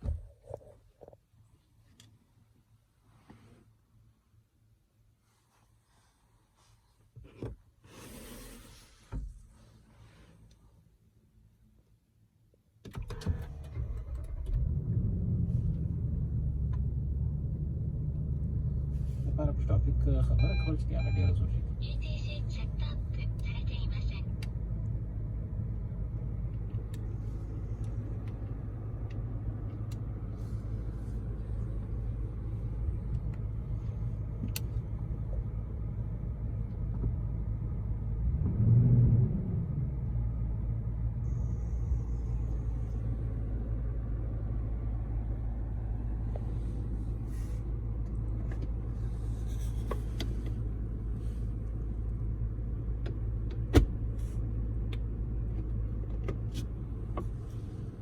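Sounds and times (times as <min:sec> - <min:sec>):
car engine running: 0:13.2 - 0:58.0
engine revving: 0:38.1 - 0:43.0.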